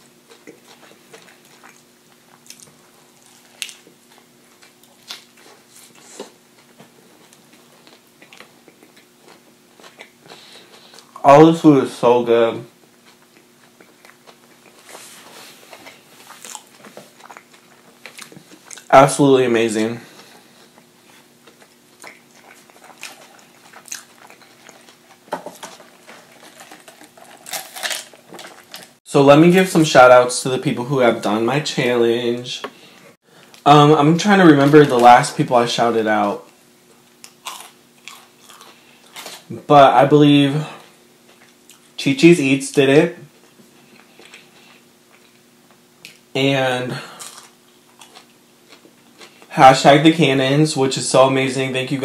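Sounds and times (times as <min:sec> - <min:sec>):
crunchy chewing: 0:00.0 - 0:11.2, 0:12.8 - 0:18.9, 0:20.0 - 0:29.0, 0:36.4 - 0:39.5, 0:40.9 - 0:42.0, 0:43.3 - 0:46.3, 0:47.1 - 0:49.5
faint hum: 0:00.0 - 0:52.0.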